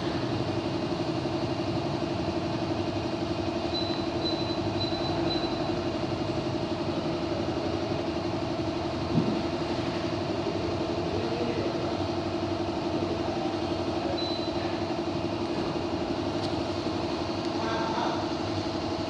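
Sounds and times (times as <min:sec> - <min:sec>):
air conditioner humming: 0:00.0 - 0:19.0.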